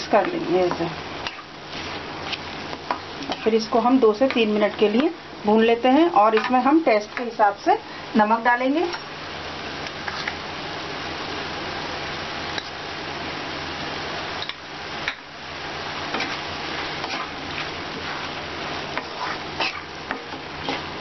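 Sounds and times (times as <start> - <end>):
meat and onions sizzling: 0.0 - 21.0
wooden spatula scraping pan: 16.1 - 21.0.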